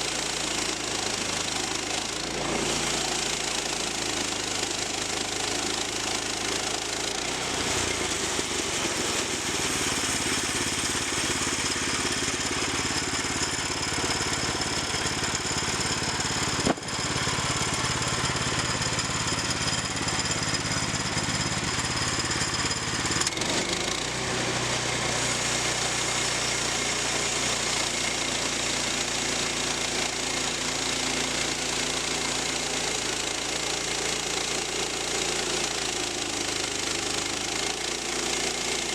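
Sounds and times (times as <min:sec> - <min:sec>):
sawmill engine running: 0:00.0 - 0:38.9
saw blade hissing through wood: 0:06.0 - 0:14.5, 0:25.1 - 0:28.2.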